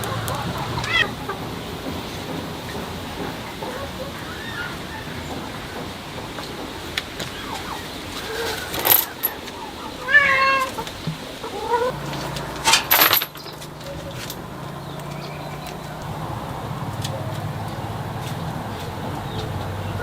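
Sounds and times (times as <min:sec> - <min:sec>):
cat meowing: 0:00.8 - 0:01.1, 0:10.0 - 0:10.9.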